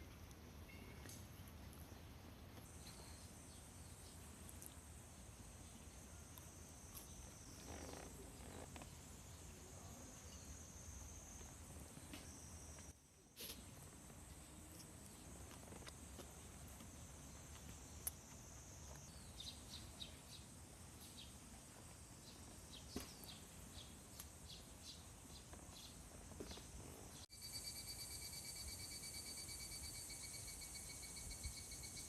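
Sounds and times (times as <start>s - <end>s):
insects humming: 2.6s - 32.0s
pulsing insect call: 27.3s - 32.0s
short high insect chirps: 27.3s - 32.0s.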